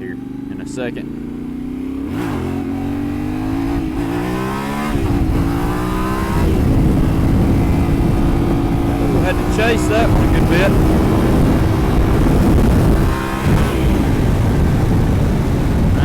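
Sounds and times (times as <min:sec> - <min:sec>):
motorcycle engine accelerating: 0:00.0 - 0:16.0
wind rush: 0:02.0 - 0:16.0.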